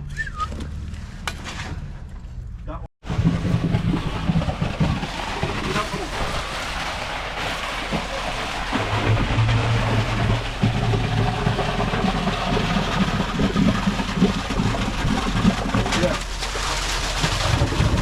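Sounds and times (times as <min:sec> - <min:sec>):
concrete pump engine hum: 0:03.0 - 0:18.0.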